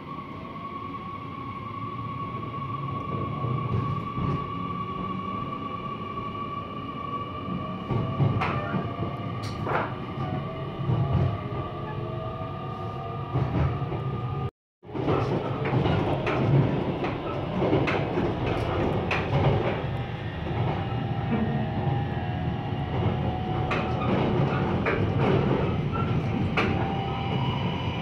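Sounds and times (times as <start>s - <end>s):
train running rumble: 7.5s - 12.0s, 13.2s - 28.0s
rail clacks: 7.8s - 11.4s, 14.9s - 22.0s, 22.8s - 27.5s.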